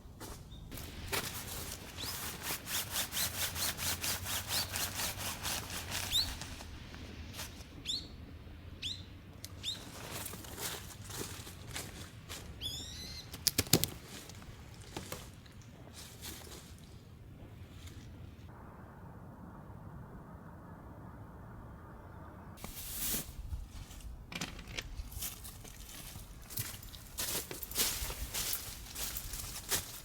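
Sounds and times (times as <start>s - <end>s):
high rising bird calls: 7.8s - 8.2s, 12.6s - 13.3s
sharp clicks: 13.3s - 14.0s.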